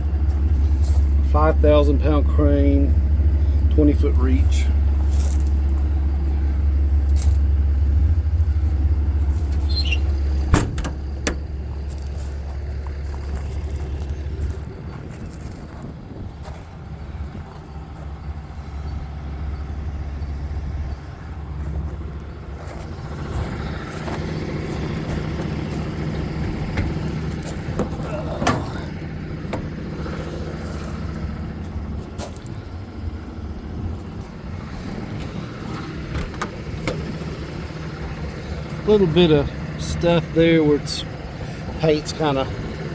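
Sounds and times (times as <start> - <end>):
diesel truck idling: 0.0 - 42.9
short high squeak: 9.6 - 10.2.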